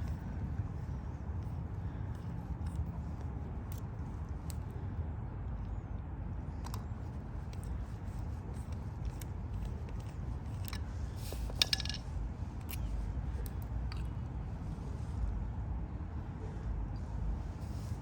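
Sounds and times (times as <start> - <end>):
screwdriver clicking and scraping metal: 0.0 - 4.7, 6.6 - 14.2
low background rumble: 0.0 - 18.0.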